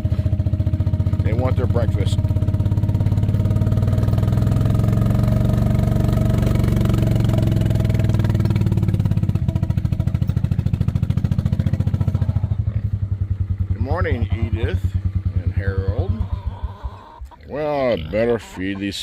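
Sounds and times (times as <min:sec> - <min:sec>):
small engine running: 0:00.0 - 0:12.9.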